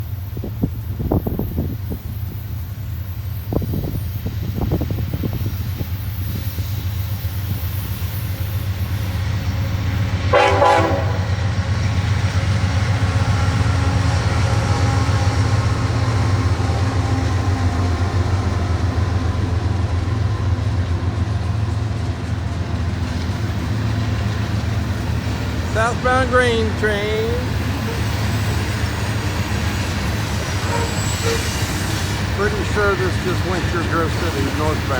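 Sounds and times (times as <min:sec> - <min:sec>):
locomotive rumbling past: 0:00.0 - 0:34.9
train horn blast: 0:10.2 - 0:11.6, 0:30.6 - 0:31.9.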